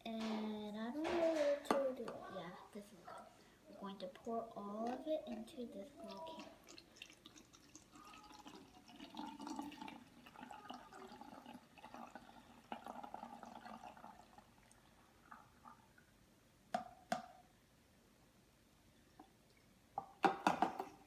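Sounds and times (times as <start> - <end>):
liquid trickling and dripping: 3.7 - 16.2.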